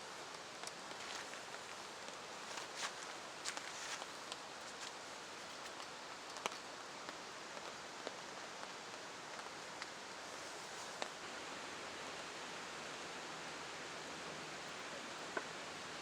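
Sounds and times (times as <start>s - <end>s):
rain hiss: 0.0s - 16.0s.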